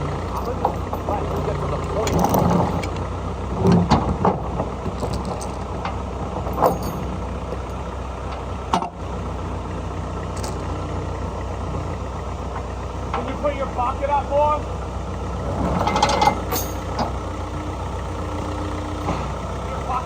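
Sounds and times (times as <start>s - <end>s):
backhoe engine running: 0.0s - 20.0s
knocks and clanks: 0.3s - 3.0s, 3.6s - 7.7s, 15.7s - 17.2s, 19.0s - 20.0s.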